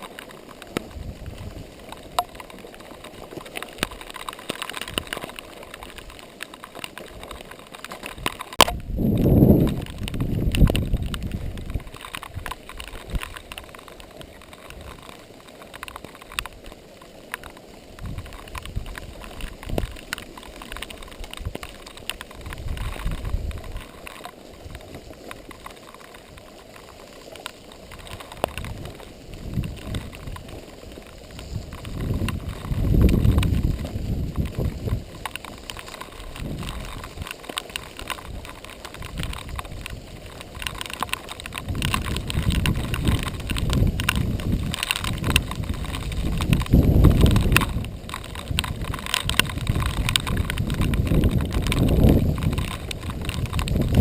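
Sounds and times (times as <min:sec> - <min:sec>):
bike rattling with clicks: 0:00.0 - 0:54.0
bike tyres on dirt: 0:00.0 - 0:54.0
wind buffeting microphone: 0:00.9 - 0:01.8, 0:08.2 - 0:15.0, 0:18.0 - 0:20.0, 0:20.8 - 0:23.8, 0:27.9 - 0:54.0.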